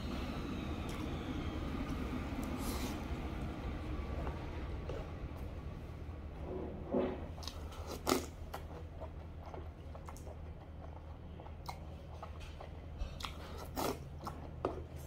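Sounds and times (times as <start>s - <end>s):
steady low hum: 0.0s - 15.0s
person chewing food: 7.4s - 15.0s.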